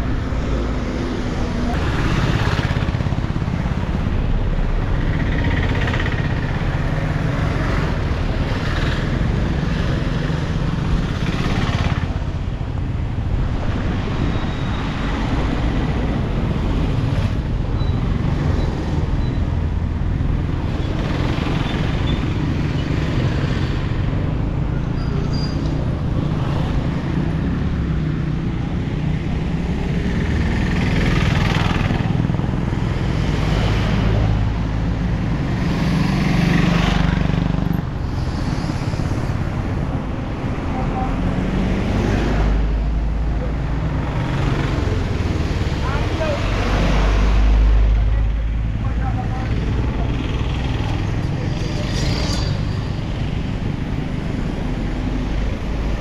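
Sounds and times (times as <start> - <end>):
engines rumbling: 0.0 - 56.0
vehicles passing: 0.0 - 56.0.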